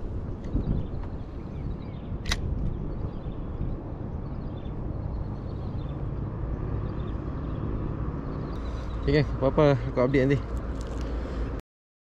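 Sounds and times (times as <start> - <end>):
wind rumble on microphone: 0.0 - 11.6
sharp click: 2.2 - 2.7.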